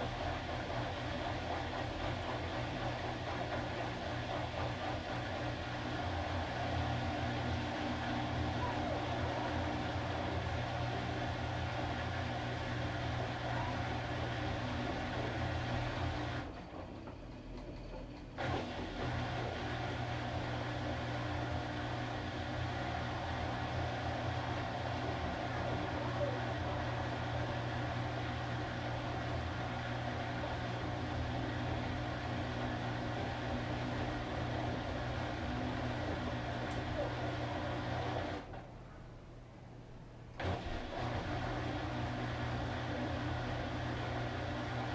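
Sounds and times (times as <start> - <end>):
washing machine motor humming: 0.0 - 29.0, 29.8 - 38.6, 40.4 - 44.9.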